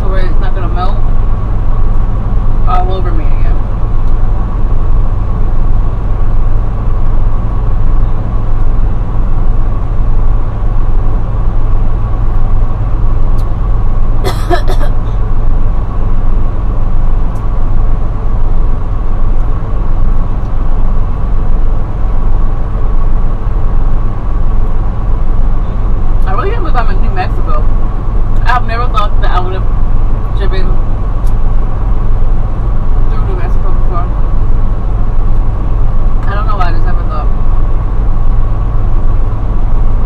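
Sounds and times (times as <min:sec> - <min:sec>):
truck engine droning: 0:00.0 - 0:40.0.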